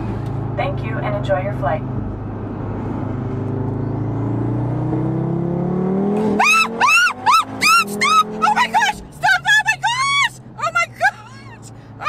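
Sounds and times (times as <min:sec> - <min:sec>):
car engine accelerating: 0:00.0 - 0:12.0
woman screaming: 0:06.2 - 0:11.6.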